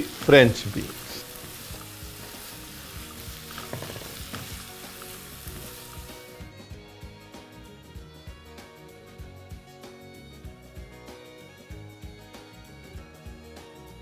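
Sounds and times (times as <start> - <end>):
spatula scraping a pan: 0.0 - 6.4
vegetables sizzling in hot oil: 0.0 - 7.3
faint background music: 0.0 - 14.0.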